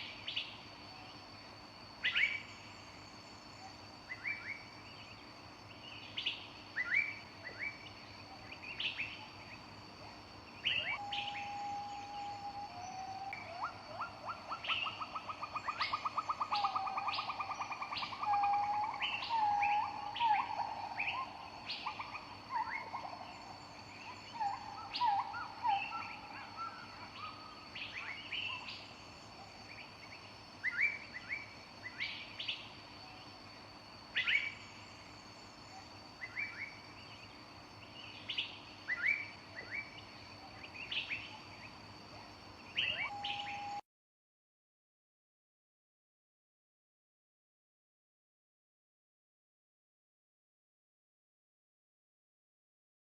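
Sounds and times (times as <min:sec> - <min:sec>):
songbirds chirping: 0:00.0 - 0:43.8
whistled bird notes: 0:10.6 - 0:28.8, 0:42.7 - 0:43.8.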